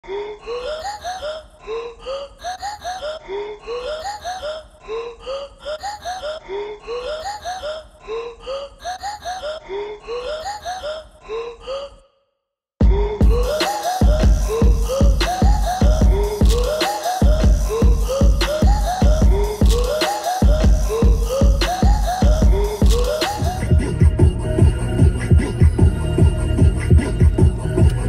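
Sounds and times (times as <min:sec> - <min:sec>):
looped voice with rising notes: 0:13.2 - 0:28.0.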